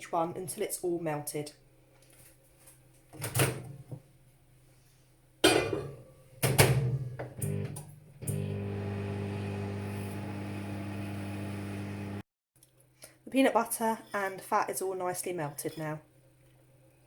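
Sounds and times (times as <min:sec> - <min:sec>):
microwave humming: 0:06.5 - 0:12.2.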